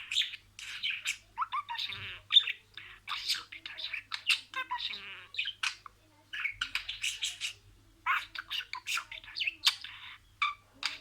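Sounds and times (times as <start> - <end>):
budgerigar warbling and chirping: 0.0 - 11.0.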